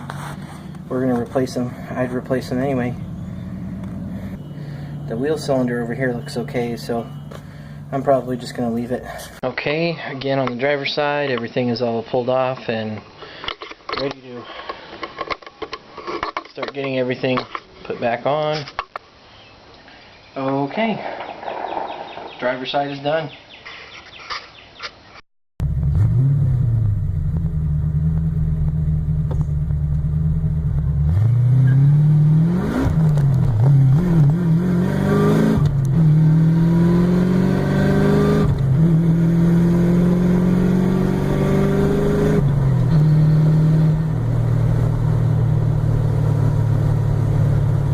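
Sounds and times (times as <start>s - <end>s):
car engine accelerating: 0.0s - 9.3s, 25.6s - 47.9s.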